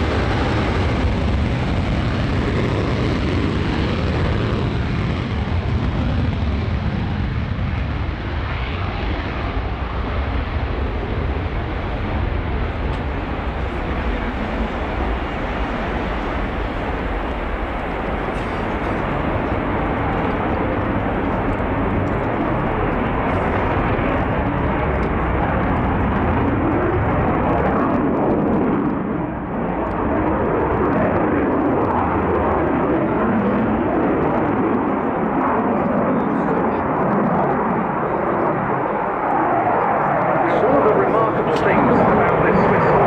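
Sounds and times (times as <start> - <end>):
aircraft engine drone: 0.0 - 43.0.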